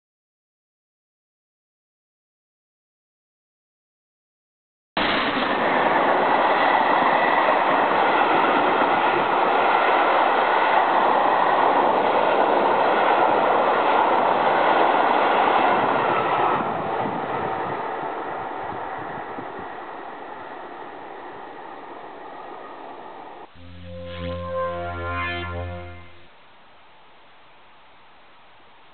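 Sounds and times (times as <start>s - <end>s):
train passing at speed: 5.0s - 26.3s.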